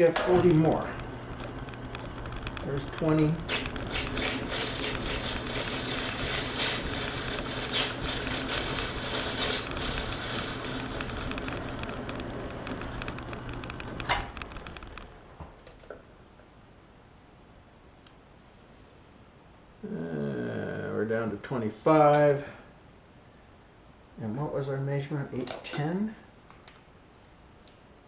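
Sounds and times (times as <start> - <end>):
metal lathe cutting: 2.8 - 12.2.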